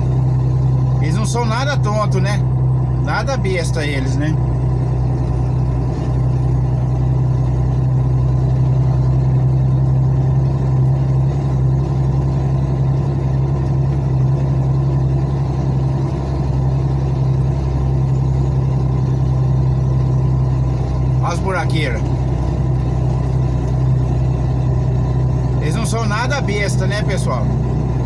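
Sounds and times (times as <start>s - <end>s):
truck engine droning: 0.0s - 28.0s.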